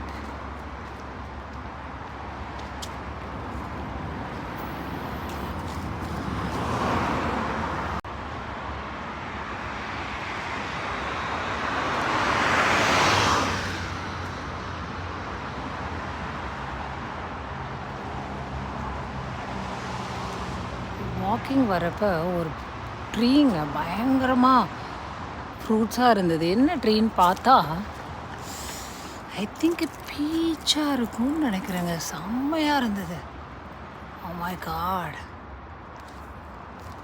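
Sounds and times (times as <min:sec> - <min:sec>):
low hum of traffic: 0:00.0 - 0:37.0
vehicle passing: 0:01.8 - 0:08.0, 0:10.5 - 0:15.1.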